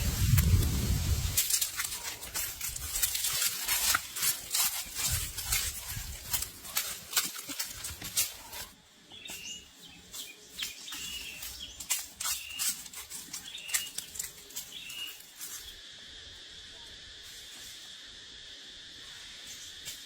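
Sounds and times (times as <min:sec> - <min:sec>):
bird chirping: 0:08.4 - 0:15.3
high-pitched insect drone: 0:10.3 - 0:20.0.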